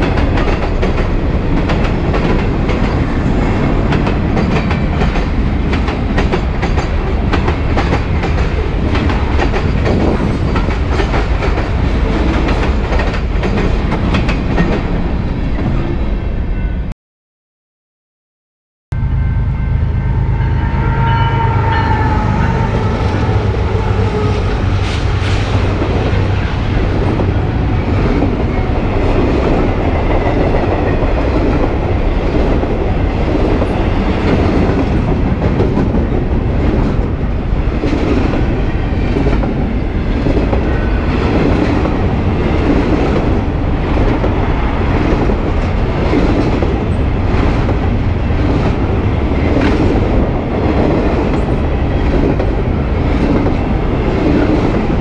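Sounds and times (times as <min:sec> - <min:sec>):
train rumbling past: 0:00.0 - 0:16.9, 0:19.0 - 0:55.0.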